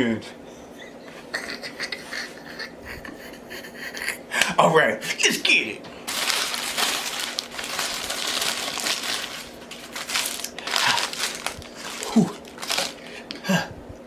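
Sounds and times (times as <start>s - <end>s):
paper packaging crinkling: 6.0s - 13.4s.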